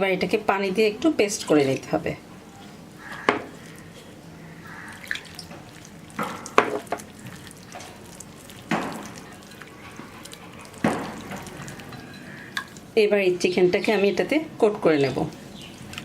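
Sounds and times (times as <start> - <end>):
batter being mixed in a bowl: 4.7 - 13.9, 14.7 - 16.0.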